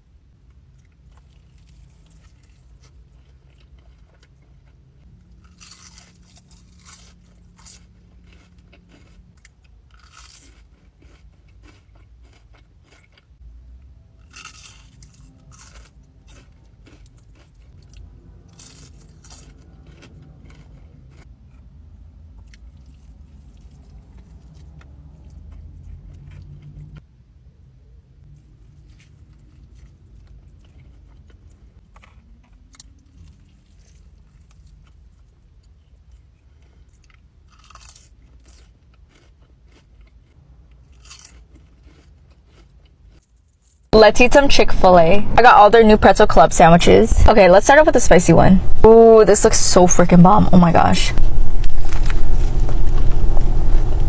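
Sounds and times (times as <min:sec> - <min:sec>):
person chewing crunchy food: 0:00.5 - 0:13.4, 0:14.2 - 0:27.0, 0:28.3 - 0:43.9.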